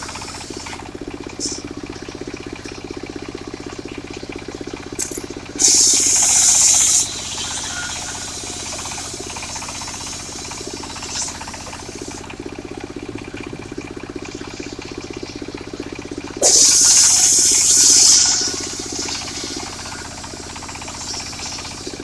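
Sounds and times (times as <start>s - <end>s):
circular saw cutting wood: 0.0s - 1.6s, 5.6s - 12.3s, 16.4s - 22.0s
sawmill engine running: 0.0s - 22.0s.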